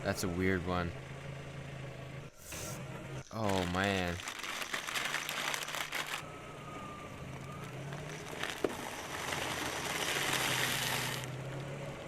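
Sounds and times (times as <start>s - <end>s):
car engine running: 0.0s - 12.0s
rushing crackling noise: 3.5s - 6.2s, 7.9s - 11.3s.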